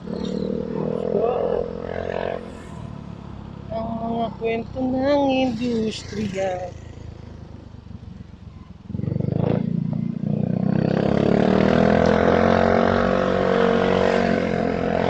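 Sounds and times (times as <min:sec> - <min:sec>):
motorcycle engine pulling away: 0:05.5 - 0:15.0.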